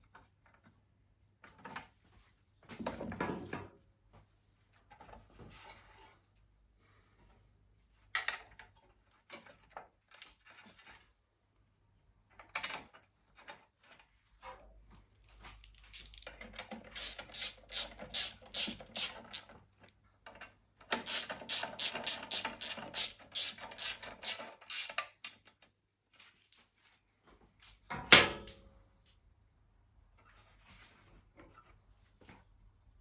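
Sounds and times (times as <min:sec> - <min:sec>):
ratchet clicking: 0:15.6 - 0:19.5, 0:20.9 - 0:25.3.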